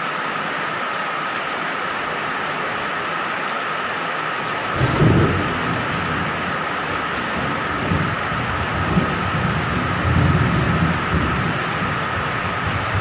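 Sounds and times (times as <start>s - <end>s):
heavy rain falling: 0.0s - 13.0s
thunder rumbling: 4.7s - 13.0s.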